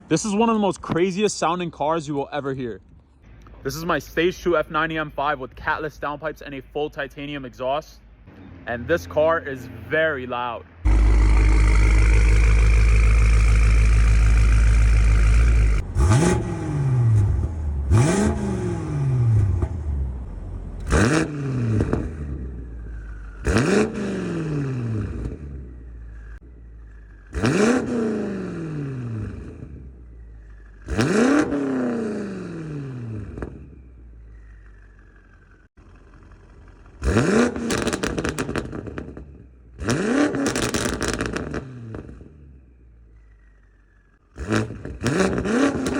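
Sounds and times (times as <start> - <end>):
car engine revving: 10.8 - 42.4, 43.2 - 45.9
exhaust crackling on the overrun: 10.8 - 45.9.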